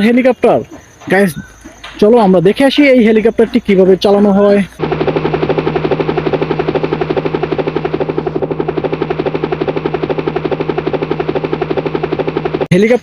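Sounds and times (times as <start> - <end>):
helicopter rotor beating: 4.8 - 13.0.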